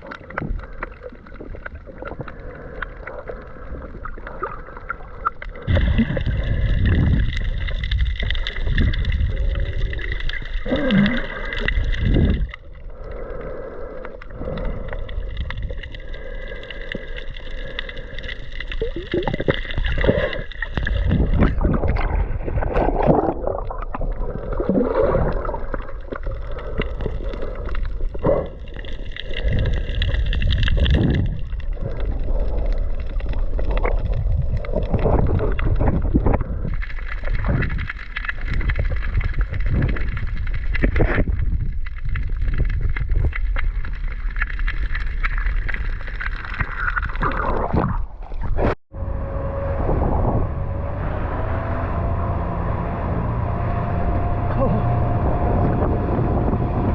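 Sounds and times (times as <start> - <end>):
rushing water: 0.0 - 13.4, 14.2 - 48.8
wind buffeting microphone: 5.7 - 8.1, 49.0 - 56.9
speed boat engine: 49.0 - 56.9.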